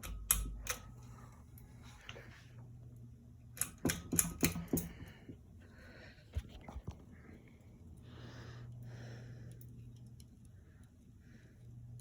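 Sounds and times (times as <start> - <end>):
fan pull-chain switch clicking: 0.0 - 0.9, 3.5 - 5.0
fan motor hum: 0.0 - 12.0.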